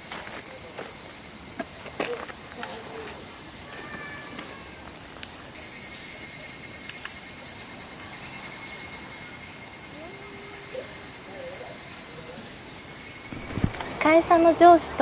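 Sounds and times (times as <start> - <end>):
cicadas pulsing chorus: 0.0 - 15.0.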